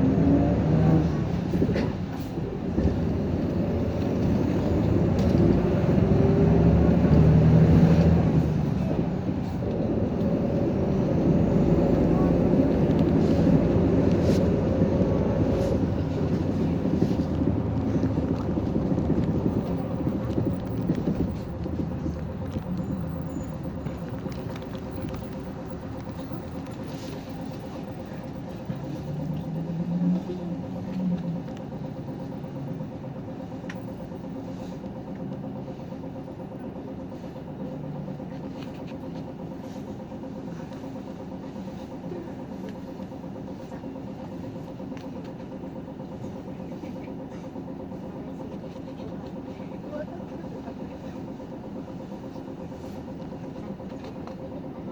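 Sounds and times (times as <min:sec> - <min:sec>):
bus engine: 0:00.0 - 0:54.9
road noise: 0:00.0 - 0:54.9.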